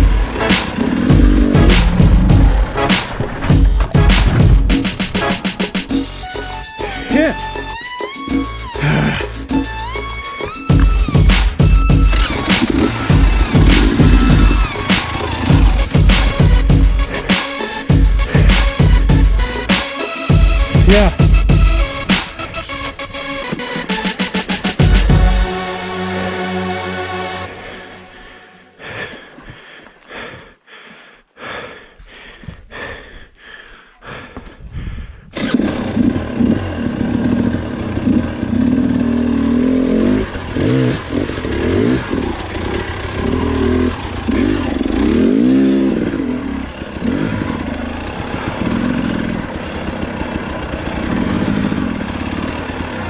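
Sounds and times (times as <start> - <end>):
dirt bike engine revving: 0.0 - 28.8, 35.4 - 53.0.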